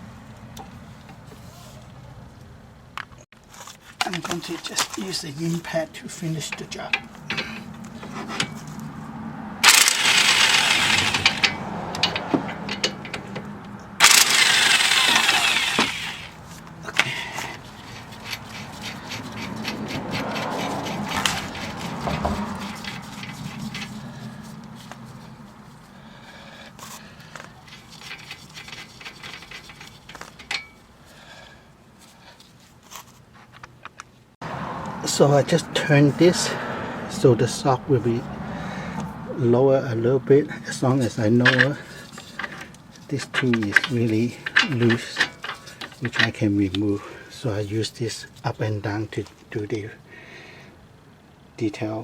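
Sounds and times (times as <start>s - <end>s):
clicks of tool handling: 6.5s - 8.9s, 9.6s - 19.6s, 26.7s - 30.8s, 41.4s - 46.8s
impact wrench hammering: 9.6s - 16.3s.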